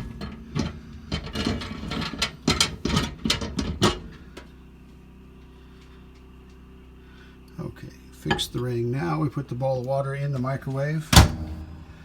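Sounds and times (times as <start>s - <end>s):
low steady hum: 0.0s - 12.0s
microwave tray clattering: 8.3s - 8.7s, 11.0s - 11.9s.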